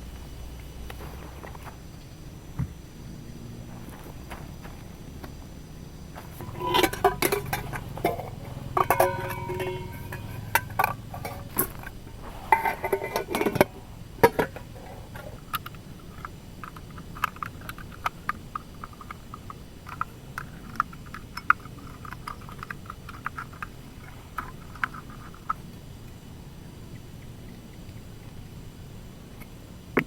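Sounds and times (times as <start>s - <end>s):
metal cookware clinking: 6.4s - 11.8s, 12.5s - 14.7s.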